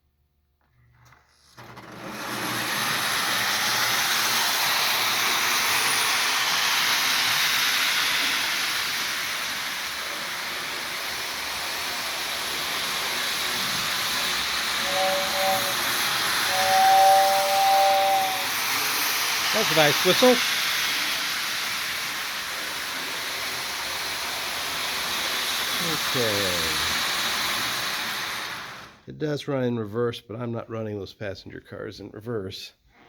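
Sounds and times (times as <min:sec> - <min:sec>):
toy train running on track: 0:01.4 - 0:29.0
two-tone train whistle: 0:02.9 - 0:21.4, 0:25.8 - 0:26.9.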